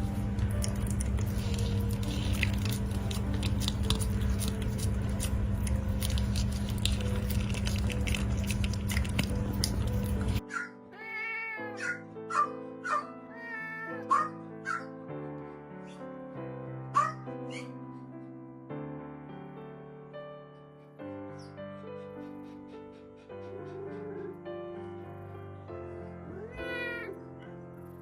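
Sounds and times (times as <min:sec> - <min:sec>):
low hum: 0:00.0 - 0:10.4
background music: 0:00.0 - 0:28.0
cat meowing: 0:10.5 - 0:14.8, 0:26.3 - 0:27.2.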